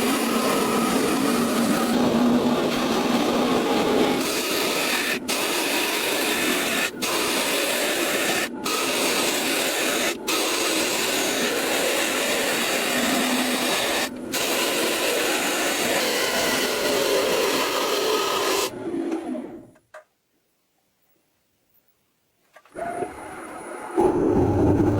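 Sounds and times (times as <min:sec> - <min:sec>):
wood lathe tool hissing: 0:00.0 - 0:18.8.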